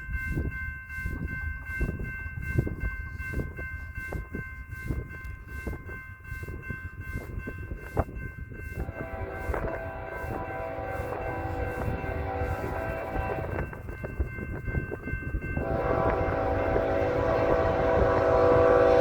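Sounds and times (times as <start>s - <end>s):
crossing bell ringing: 0.0s - 19.0s
freight train rumble and knocks: 6.6s - 19.0s
locomotive horn chord: 8.8s - 13.7s, 15.6s - 19.0s.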